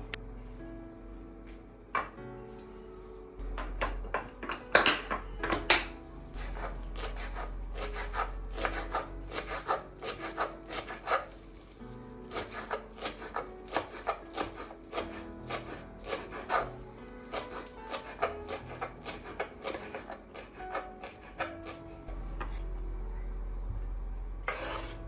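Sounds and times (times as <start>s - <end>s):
soft background music: 0.0s - 25.0s
kitchen scrapes and taps: 24.5s - 25.0s.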